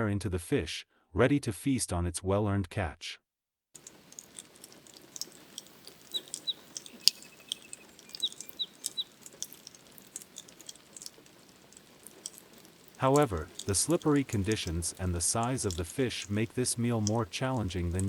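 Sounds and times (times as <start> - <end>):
bird chirping: 3.8 - 18.0
bird trill: 3.8 - 18.0
raindrops clicking: 3.8 - 18.0.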